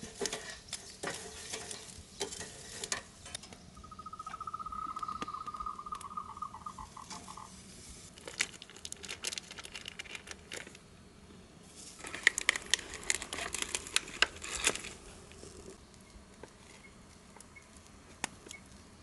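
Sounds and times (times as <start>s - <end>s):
crinkling and rustling crackles: 0.0s - 3.6s, 7.0s - 10.9s, 11.6s - 19.0s.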